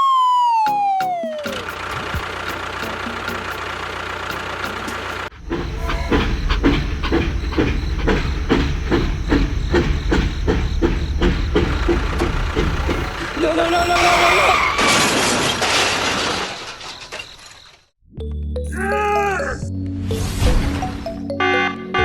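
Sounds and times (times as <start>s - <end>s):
pulsing engine-like rumble: 1.6s - 14.0s.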